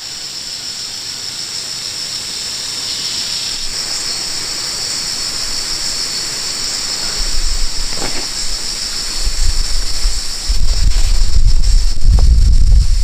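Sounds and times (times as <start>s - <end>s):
high-pitched insect chorus: 0.0s - 13.0s
wind rumbling on microphone: 6.7s - 13.0s.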